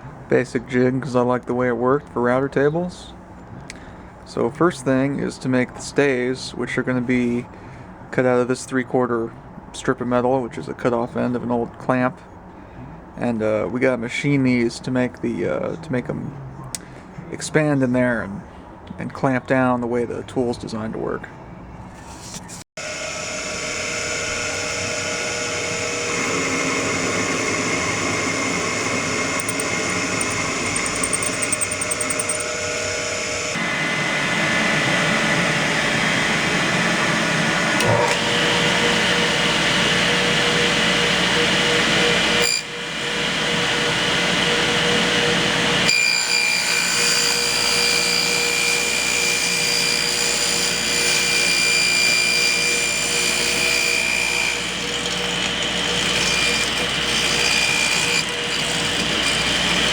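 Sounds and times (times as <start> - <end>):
power tool machining metal: 22.8 - 36.7, 37.6 - 59.9.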